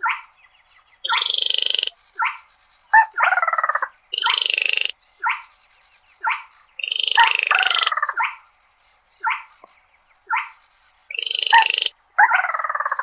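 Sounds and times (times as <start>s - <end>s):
sharp upslurred bird calls: 0.0s - 13.0s
bird rattling calls: 1.0s - 2.1s, 4.1s - 4.9s, 6.8s - 8.0s, 11.1s - 11.9s.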